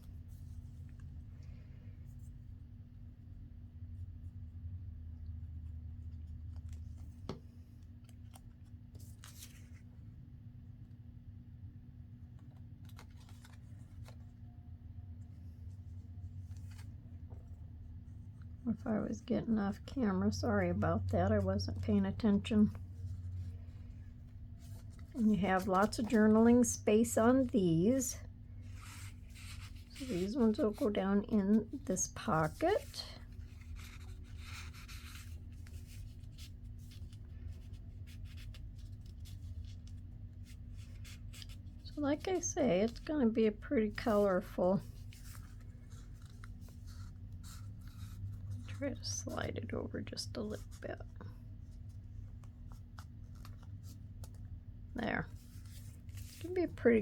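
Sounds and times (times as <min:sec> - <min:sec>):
steady low hum: 0:00.0 - 0:57.0
paper rustling: 0:06.0 - 0:09.9, 0:12.3 - 0:14.5, 0:15.3 - 0:17.5, 0:19.8 - 0:43.1, 0:43.8 - 0:49.4, 0:50.5 - 0:54.5, 0:55.2 - 0:57.0
paper taps and rubs: 0:06.4 - 0:09.8.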